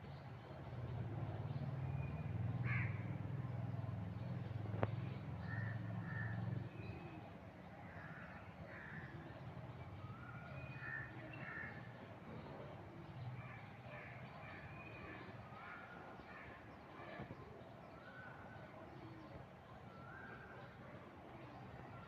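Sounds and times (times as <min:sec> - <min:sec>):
crows cawing: 0:02.6 - 0:03.0, 0:05.4 - 0:06.4, 0:07.9 - 0:09.2, 0:10.8 - 0:11.9.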